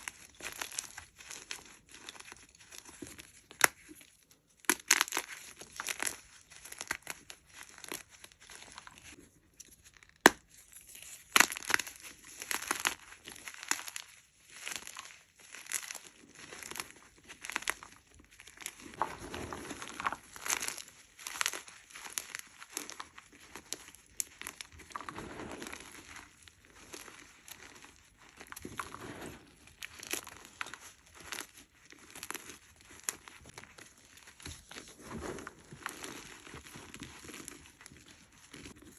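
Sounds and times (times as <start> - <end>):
chalk crunching and crackling: 9.8 - 38.9.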